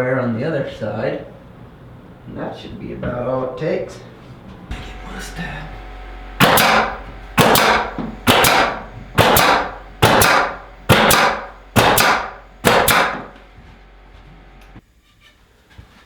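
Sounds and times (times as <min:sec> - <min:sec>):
nails hammered into wood: 0:06.4 - 0:13.3.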